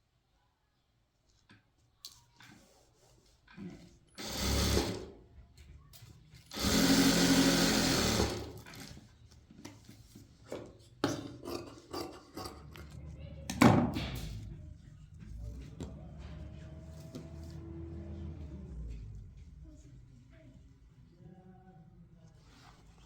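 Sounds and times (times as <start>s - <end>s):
sewing machine running: 4.2s - 5.2s, 6.5s - 8.9s.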